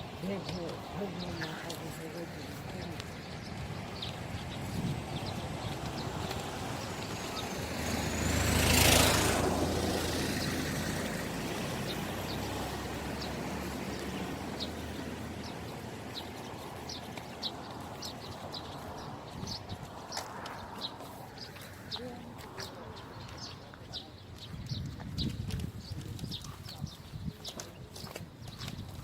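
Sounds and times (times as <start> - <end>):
low engine hum: 0.0 - 19.2
vehicle driving past: 4.9 - 16.3.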